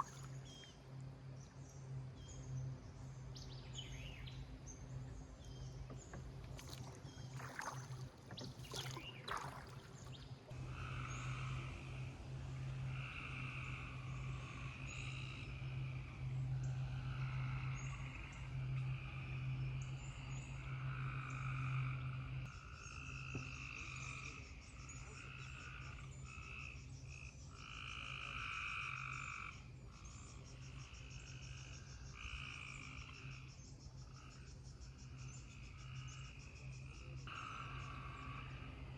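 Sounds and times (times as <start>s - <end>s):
low steady hum: 0.0s - 27.5s
frogs croaking in chorus: 8.7s - 12.2s, 12.8s - 38.9s.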